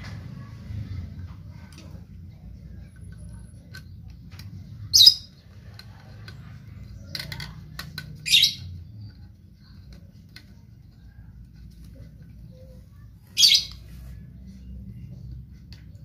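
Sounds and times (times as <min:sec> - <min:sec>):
bird squawking: 0:08.2 - 0:08.7, 0:13.3 - 0:13.9.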